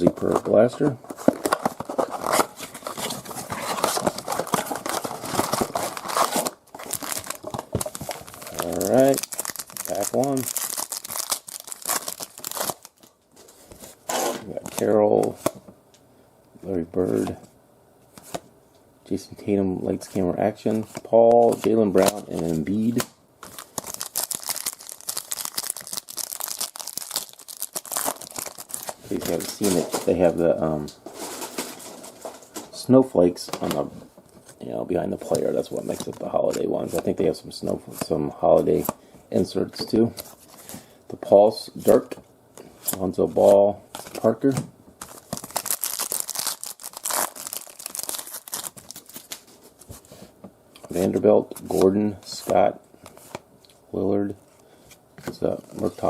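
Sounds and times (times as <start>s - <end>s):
plastic wrap crinkling and tearing: 1.2s - 13.2s, 22.0s - 29.8s, 45.0s - 49.6s.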